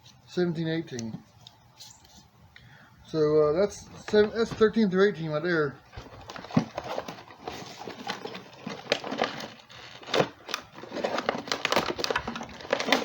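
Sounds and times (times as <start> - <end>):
packaging rustling and crinkling: 3.8 - 5.0, 5.9 - 13.0.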